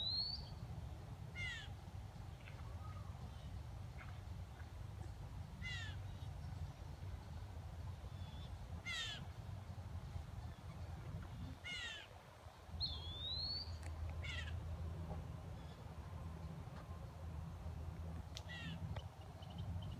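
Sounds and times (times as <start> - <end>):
bird harsh downward calls: 1.4 - 1.7, 5.6 - 6.0, 8.8 - 9.2, 11.6 - 12.1, 12.8 - 14.6, 18.4 - 18.8.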